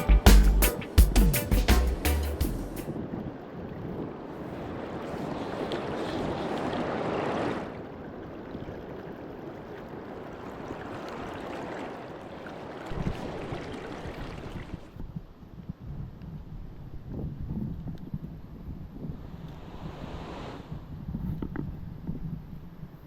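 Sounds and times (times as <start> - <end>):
river rushing: 9.5 - 14.9.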